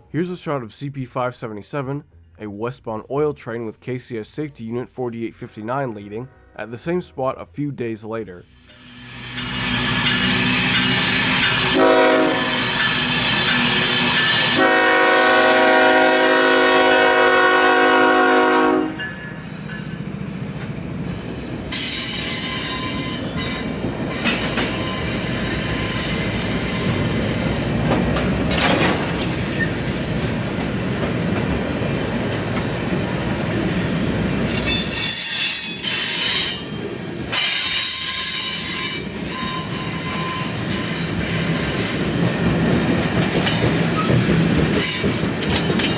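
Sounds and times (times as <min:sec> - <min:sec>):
freight train rumbling past: 0:08.4 - 0:45.9
train wheels squealing: 0:08.5 - 0:14.6, 0:19.0 - 0:30.6, 0:34.4 - 0:42.2
locomotive horn blasts: 0:11.6 - 0:12.8, 0:14.5 - 0:19.0.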